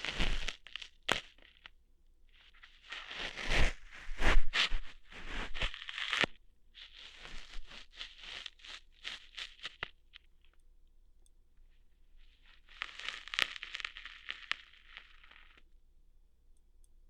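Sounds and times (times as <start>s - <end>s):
ear hair plucking crackles: 0.0s - 1.7s, 2.4s - 10.5s, 12.2s - 15.6s.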